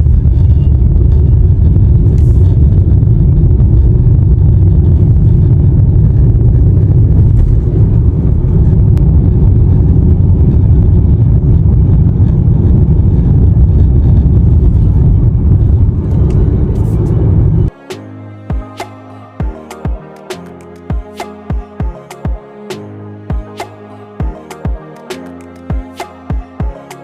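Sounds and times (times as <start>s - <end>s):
car cabin road rumble: 0.0s - 17.7s.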